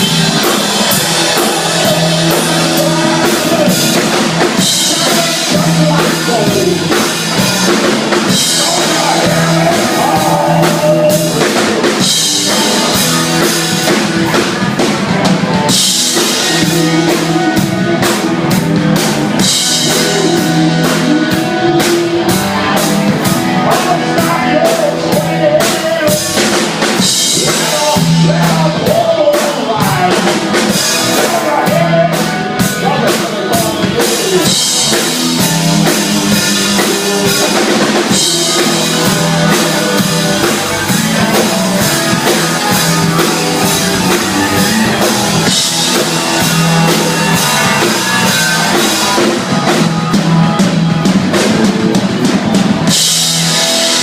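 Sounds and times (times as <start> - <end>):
bending lead melody: 0.0 - 54.0
drum kit steady beat: 0.0 - 54.0
guitar: 0.0 - 54.0.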